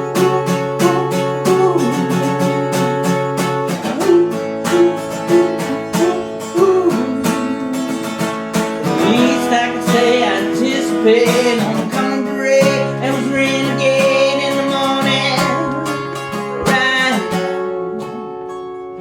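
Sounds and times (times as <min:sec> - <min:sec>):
person singing wordlessly: 0:00.0 - 0:18.5
acoustic guitar strumming: 0:00.0 - 0:19.0.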